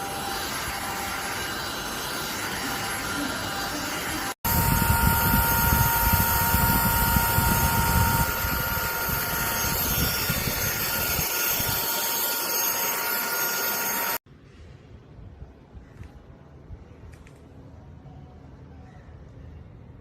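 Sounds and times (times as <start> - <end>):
handheld vacuum cleaner running: 0.0 - 14.2.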